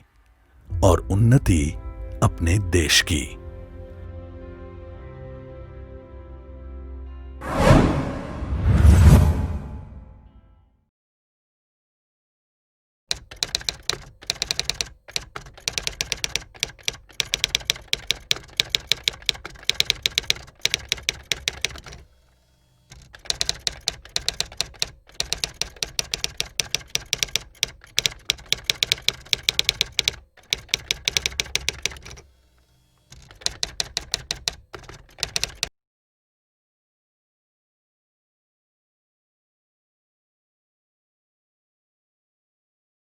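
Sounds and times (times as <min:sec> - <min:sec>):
keyboard typing clicks: 0:13.1 - 0:22.1, 0:22.9 - 0:35.7.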